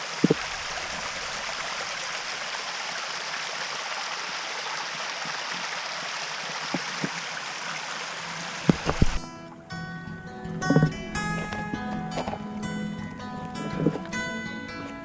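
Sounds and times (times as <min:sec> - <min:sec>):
waterfall rushing: 0:00.0 - 0:09.3
sharp knocks: 0:08.7 - 0:09.2
music: 0:09.2 - 0:15.0.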